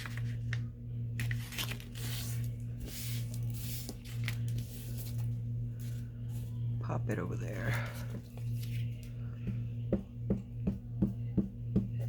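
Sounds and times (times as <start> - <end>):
steady low hum: 0.0 - 12.0
paper rustling and sliding: 1.2 - 5.3.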